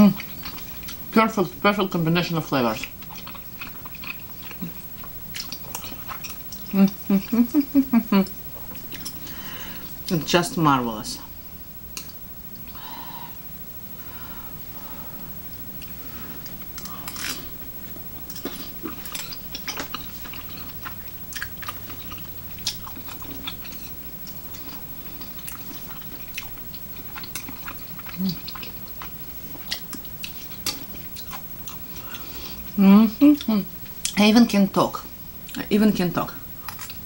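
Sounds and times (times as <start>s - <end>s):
steady low hum: 0.0s - 37.0s
wet chewing and mouth clicks: 0.1s - 1.1s, 2.8s - 7.6s, 18.2s - 34.2s, 36.6s - 37.0s.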